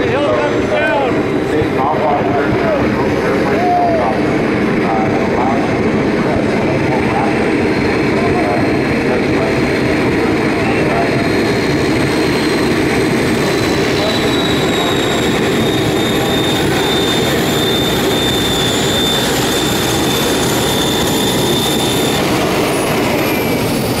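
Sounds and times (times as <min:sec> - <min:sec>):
rc helicopter motor whine: 0:11.4 - 0:24.0.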